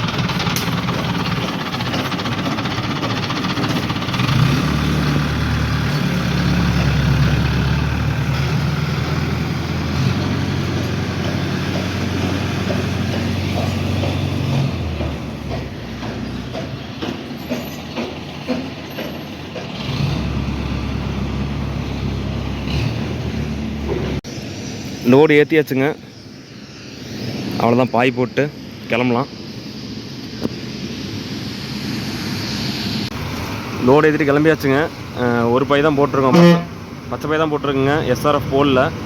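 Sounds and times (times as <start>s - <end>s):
metallic clanks and knocks: 0.0s - 4.3s, 10.8s - 19.8s
heavy vehicle engine running: 0.0s - 25.0s, 29.3s - 39.0s.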